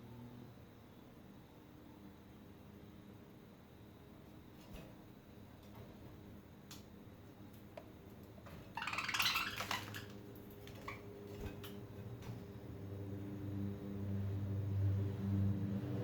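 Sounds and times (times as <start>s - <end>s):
birds rustling in cage: 8.4s - 12.7s.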